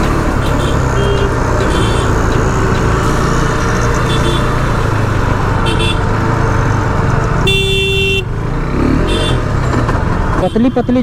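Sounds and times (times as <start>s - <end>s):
motorcycle engine running: 0.0s - 11.0s
traffic noise: 0.0s - 11.0s.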